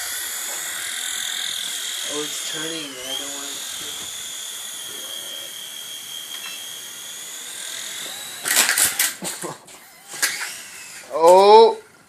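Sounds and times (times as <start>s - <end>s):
electric motor and rotor whining: 0.0s - 12.0s
loud rattling clatter: 8.0s - 9.3s.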